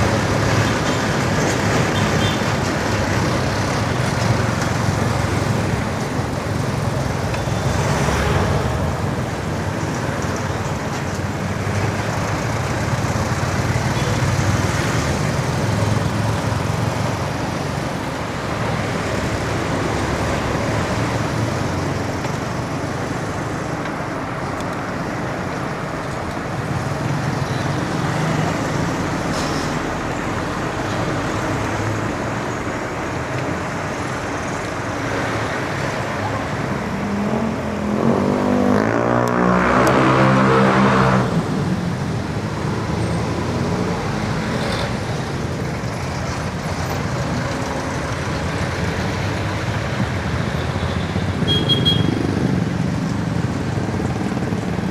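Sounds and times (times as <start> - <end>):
road traffic noise: 0.0 - 54.9
engine passing close: 37.1 - 45.4.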